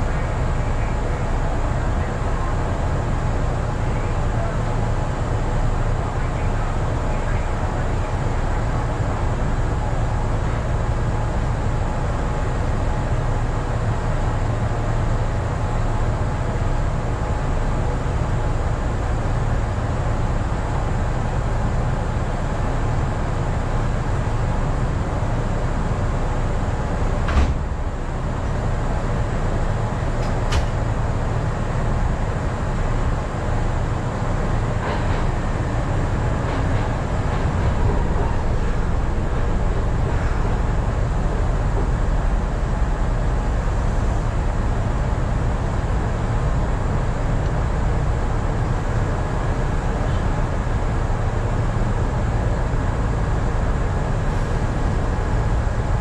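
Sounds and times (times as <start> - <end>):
electric train equipment humming: 0.0 - 56.0
train pulling in: 0.0 - 56.0
sharp clunk: 27.3 - 27.7, 30.2 - 30.8.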